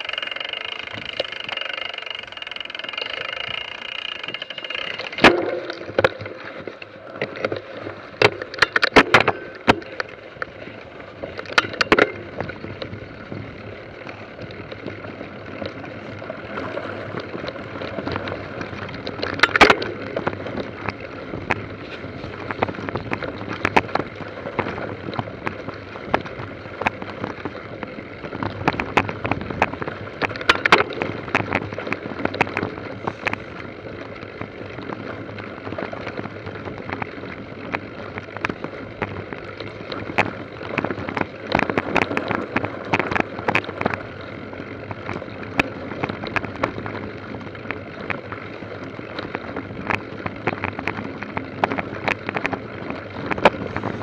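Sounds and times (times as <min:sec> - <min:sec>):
bicycle rolling over rough trail: 0:00.0 - 0:54.0
steady whine: 0:00.0 - 0:54.0.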